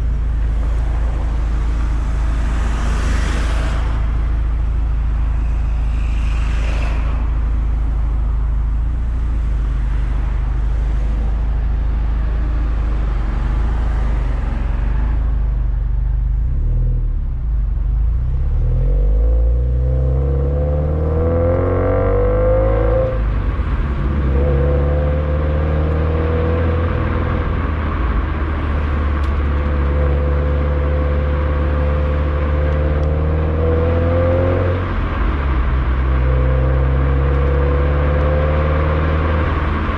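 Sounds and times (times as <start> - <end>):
car exhaust revving: 16.0 - 39.9.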